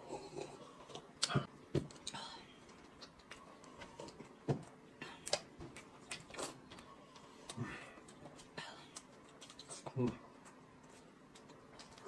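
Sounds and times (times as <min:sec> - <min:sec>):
chewing: 0:06.0 - 0:10.0.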